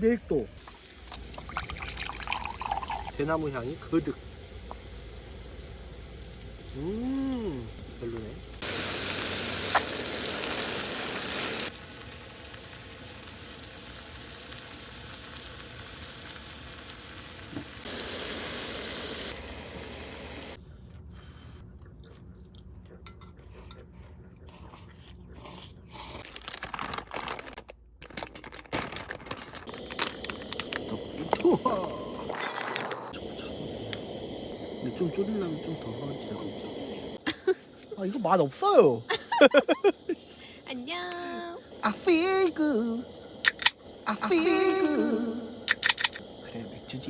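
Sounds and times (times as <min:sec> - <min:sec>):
cooking hiss: 0:00.0 - 0:20.6, 0:28.0 - 0:47.0
dishes and utensils clinking: 0:23.0 - 0:23.9.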